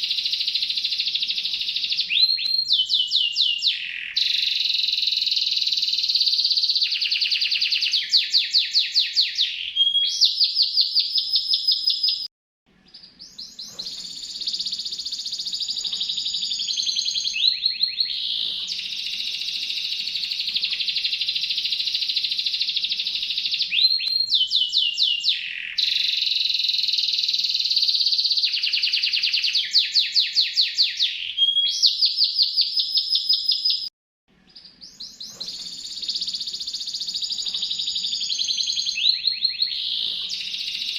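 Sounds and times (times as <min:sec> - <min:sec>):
canary singing trilled song: 0:00.0 - 0:40.9.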